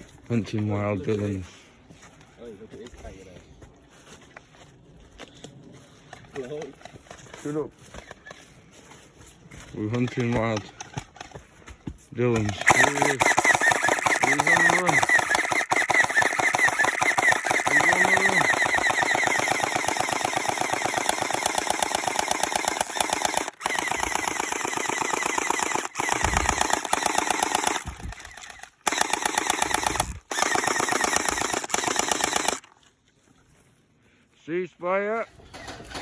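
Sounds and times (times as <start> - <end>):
gel blasters firing rapidly: 12.4 - 32.6.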